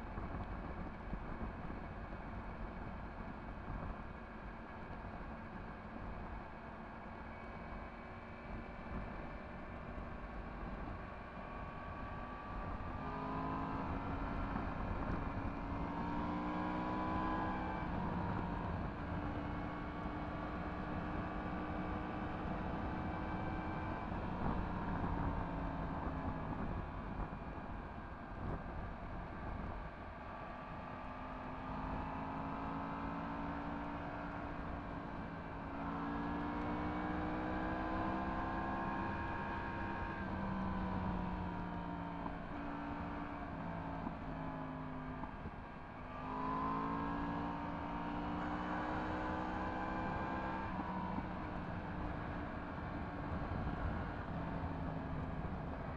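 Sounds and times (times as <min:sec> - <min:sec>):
motorcycle engine accelerating: 0:08.6 - 0:29.7, 0:30.4 - 0:55.9
wind noise on microphone: 0:24.0 - 0:29.9, 0:50.6 - 0:55.9.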